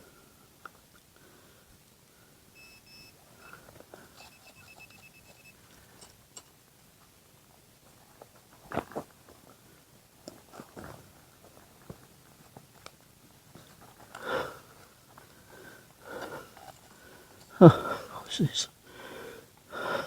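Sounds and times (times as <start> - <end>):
metal detector beeping: 2.6 - 5.6.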